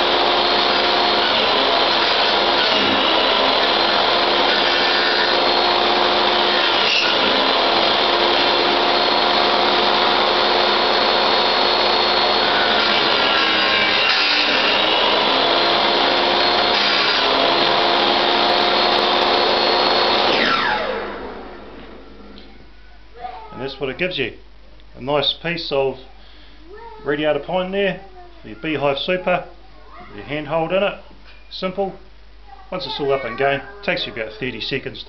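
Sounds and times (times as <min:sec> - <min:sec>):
saw motor winding down: 0:00.0 - 0:21.6
table saw whining: 0:00.0 - 0:22.3.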